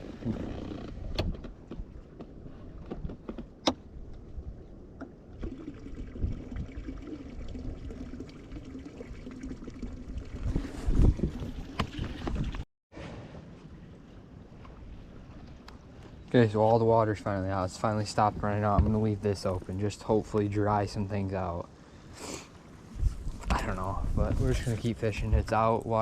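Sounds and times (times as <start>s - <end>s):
wind rumble on microphone: 5.8s - 6.9s, 10.0s - 12.6s, 22.9s - 26.0s.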